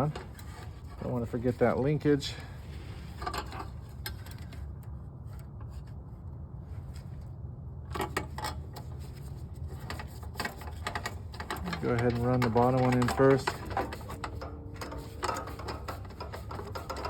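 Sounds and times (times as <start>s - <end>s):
steady low hum: 0.0s - 17.0s
metal parts clicking and rubbing: 7.9s - 17.0s.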